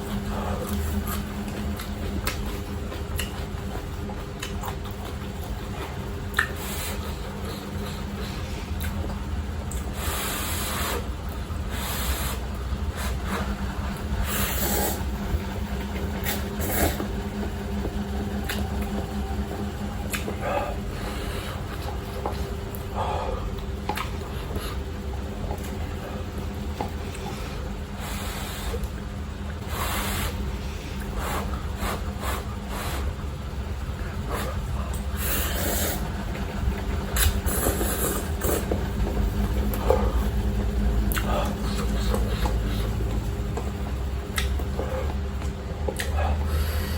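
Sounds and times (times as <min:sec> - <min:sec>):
person slurping and chewing noodles: 0:00.0 - 0:29.0, 0:29.6 - 0:46.9
low steady hum: 0:00.0 - 0:46.9
slurping noodles: 0:09.7 - 0:19.0, 0:29.6 - 0:33.1, 0:34.1 - 0:43.6.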